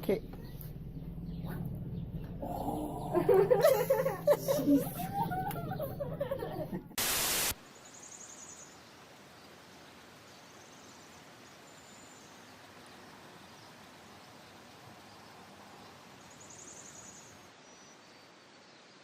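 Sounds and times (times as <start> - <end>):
loud burst of static: 7.0 - 7.6
faint steady hiss: 7.0 - 19.0.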